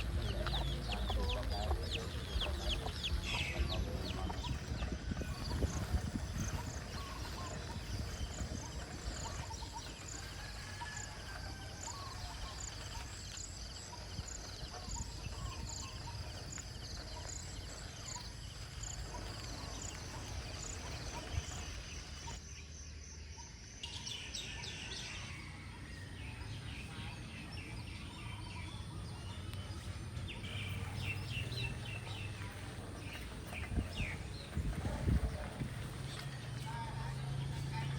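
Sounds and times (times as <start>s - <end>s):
small birds calling: 0.0s - 25.6s, 26.2s - 37.9s.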